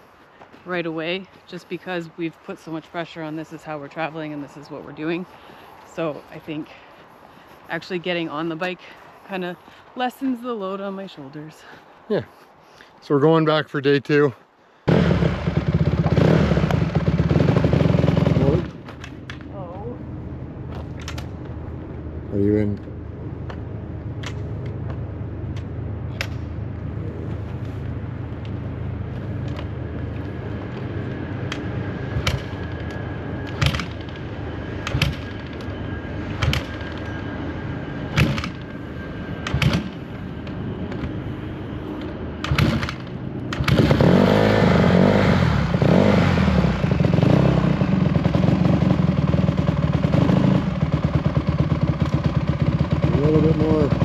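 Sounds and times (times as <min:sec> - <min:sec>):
dirt bike engine running: 0:14.9 - 0:18.9, 0:42.4 - 0:54.0.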